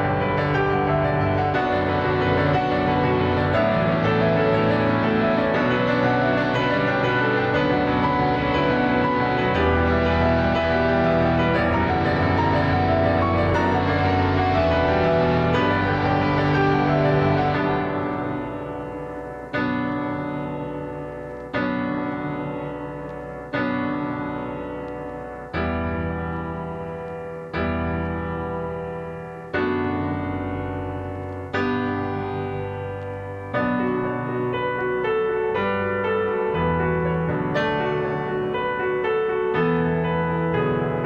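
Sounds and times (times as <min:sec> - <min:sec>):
slow piano chords: 0:00.0 - 0:41.0.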